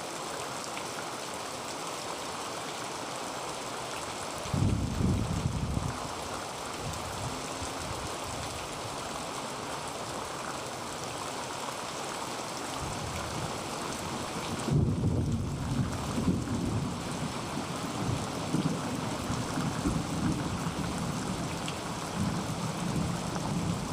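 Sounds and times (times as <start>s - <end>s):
heavy rain on a tin roof: 0.0s - 23.9s
thunder rumbling: 14.6s - 17.0s.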